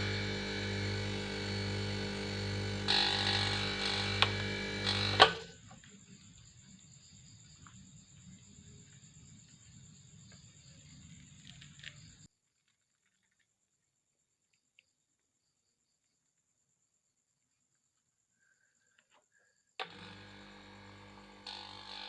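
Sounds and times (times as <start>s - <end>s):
air conditioner compressor humming: 0.0s - 5.6s, 19.9s - 22.0s.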